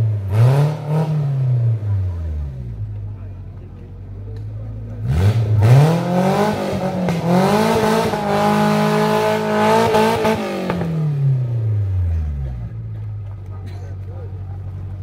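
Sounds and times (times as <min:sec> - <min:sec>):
engine revving: 0:00.0 - 0:03.0, 0:04.4 - 0:13.1.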